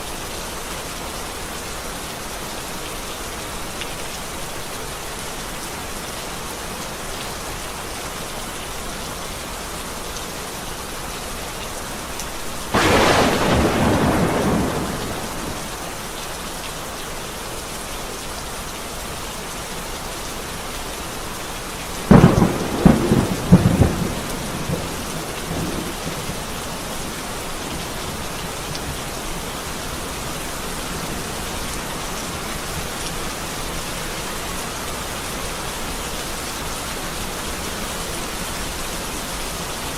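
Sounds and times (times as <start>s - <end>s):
steady rain: 0.0s - 39.9s
thunder clap and rumble: 12.7s - 16.0s, 22.1s - 26.5s.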